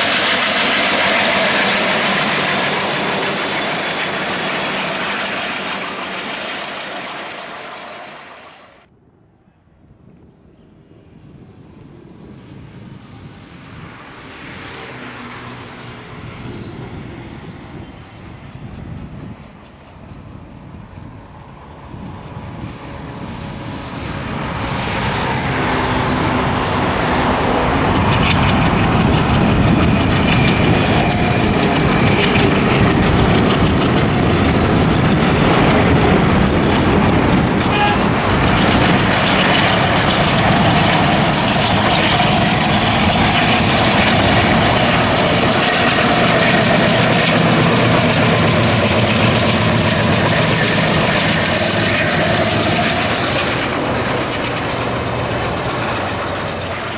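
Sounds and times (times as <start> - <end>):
diesel locomotive engine chugging: 0.0 - 8.9, 25.0 - 56.9
train wheels clattering over rail joints: 28.0 - 56.9.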